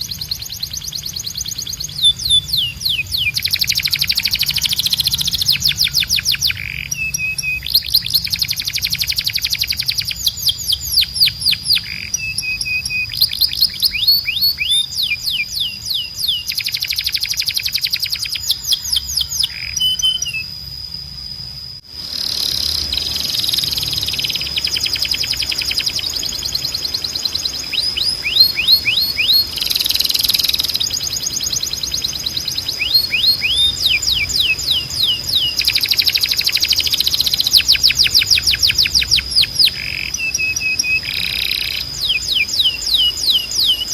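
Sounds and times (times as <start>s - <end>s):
canary singing: 0.0s - 20.8s, 22.0s - 43.9s
steady high-pitched tone: 16.8s - 43.9s.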